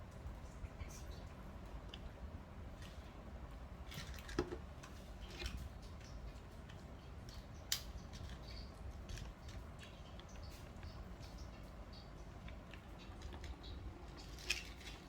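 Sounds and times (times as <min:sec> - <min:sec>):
clicks and taps of eating snacks: 0:04.0 - 0:05.0, 0:05.8 - 0:15.0.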